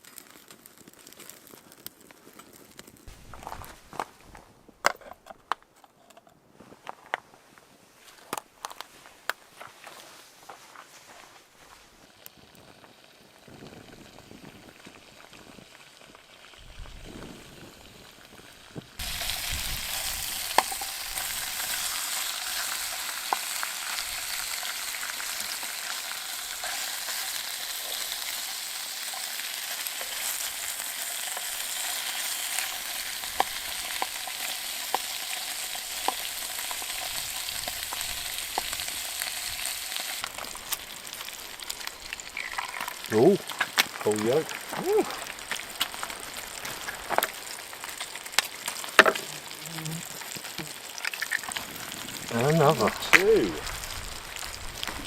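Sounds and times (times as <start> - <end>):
food sizzling in a pan: 11.1 - 55.0.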